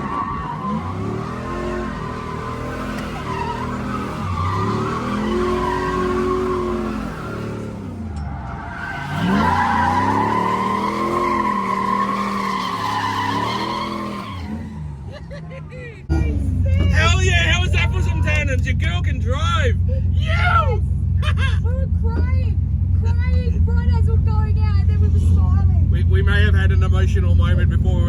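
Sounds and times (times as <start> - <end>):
tyres squealing: 0.0 - 15.1
car engines revving: 0.0 - 28.0.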